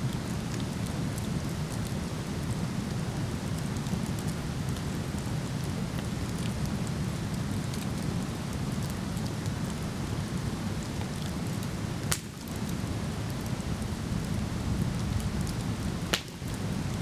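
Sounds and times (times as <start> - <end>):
campfire crackling: 0.1 - 17.0
burning wood popping: 11.1 - 12.8, 15.1 - 17.0.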